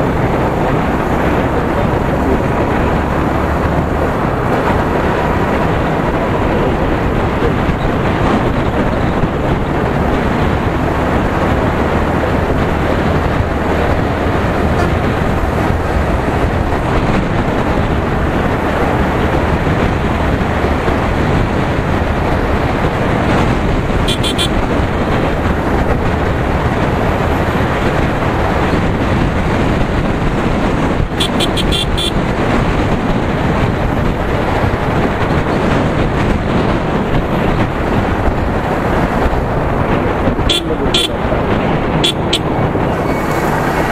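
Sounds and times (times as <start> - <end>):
motorcycle engine running: 0.0 - 43.9
wind rush: 0.0 - 43.9
short horn beeps: 24.1 - 24.6, 31.2 - 32.1.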